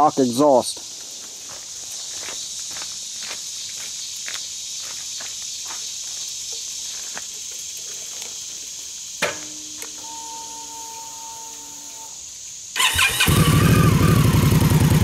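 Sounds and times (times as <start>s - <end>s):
footsteps crunching on gravel: 0.8s - 8.9s
insect buzzing: 0.8s - 13.3s.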